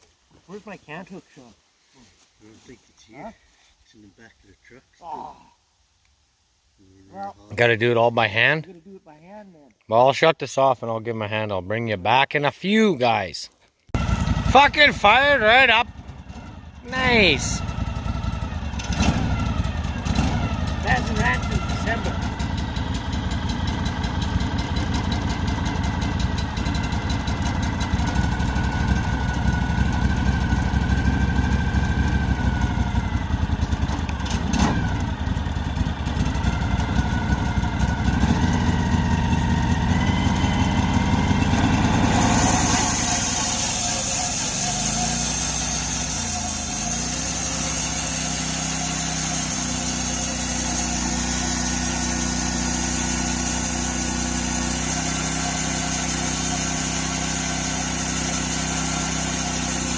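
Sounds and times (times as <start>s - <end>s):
sawmill engine running: 13.9s - 59.9s.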